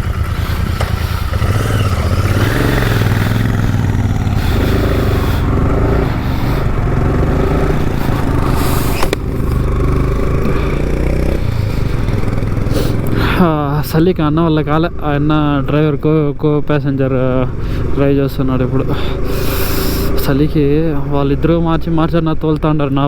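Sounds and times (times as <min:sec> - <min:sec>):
motorcycle engine running: 0:00.0 - 0:16.4, 0:17.0 - 0:23.0
road and wind noise: 0:00.0 - 0:23.0
sharp click: 0:08.9 - 0:09.2.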